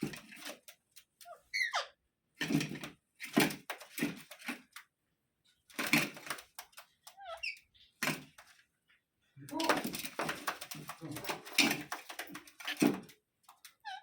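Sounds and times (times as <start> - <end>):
parakeet harsh raspy calls: 1.3 - 2.0
parakeet squeaky glide call: 1.3 - 2.0.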